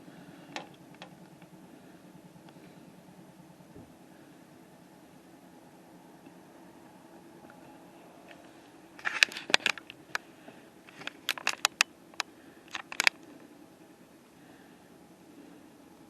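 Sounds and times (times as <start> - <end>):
faint low hum: 0.0 - 16.0
sharp clicks and crackles: 8.3 - 13.5.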